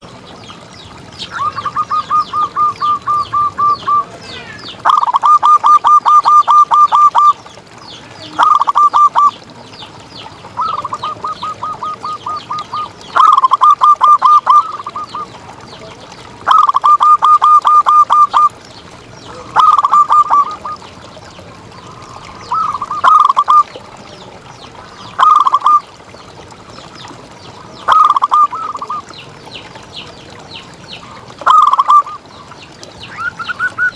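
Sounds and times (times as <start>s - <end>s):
dove cooing: 1.2s - 7.4s, 8.4s - 9.4s, 10.4s - 15.4s, 16.5s - 18.5s, 19.3s - 20.9s, 21.7s - 23.8s, 25.2s - 25.8s, 27.9s - 29.0s, 31.1s - 32.2s.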